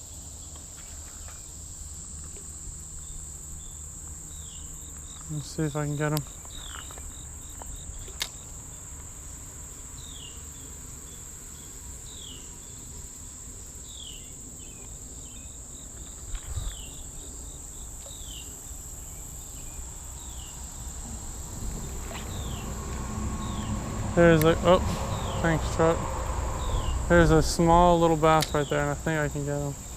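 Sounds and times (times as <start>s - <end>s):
insects trilling: 0.0s - 29.9s
low rumble: 20.6s - 29.9s.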